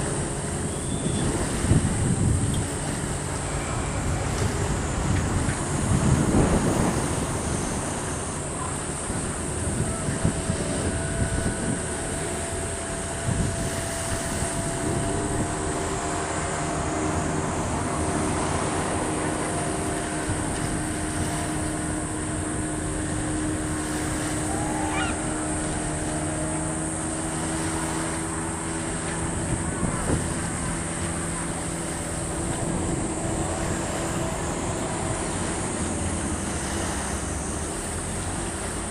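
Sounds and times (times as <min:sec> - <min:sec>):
boat engine droning: 0:00.0 - 0:38.9
wind noise on microphone: 0:00.0 - 0:38.9
rising whistle-like call: 0:00.7 - 0:01.4, 0:24.4 - 0:25.5.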